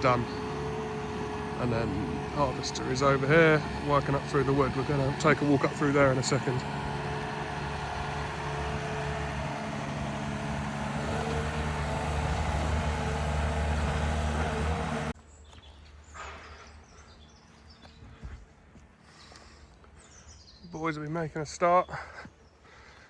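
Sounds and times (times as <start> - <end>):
heavy machine engine running: 0.0 - 15.2.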